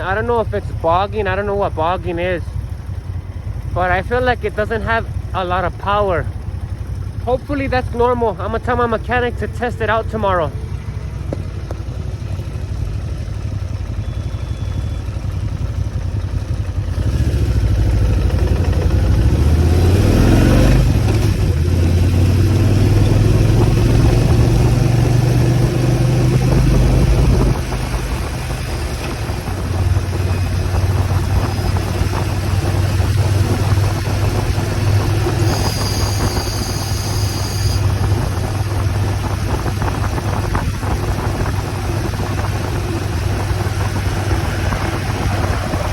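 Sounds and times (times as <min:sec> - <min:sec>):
motorcycle engine running: 0:00.0 - 0:45.9
brief high-pitched whine: 0:35.4 - 0:37.8.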